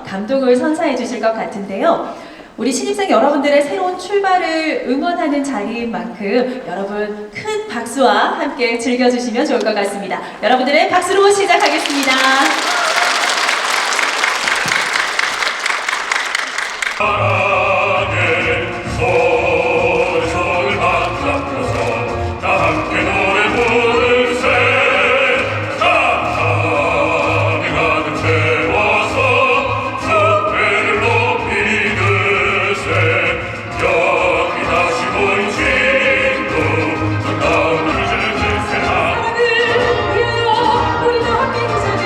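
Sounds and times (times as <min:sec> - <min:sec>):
operatic singing: 0:10.9 - 0:42.0.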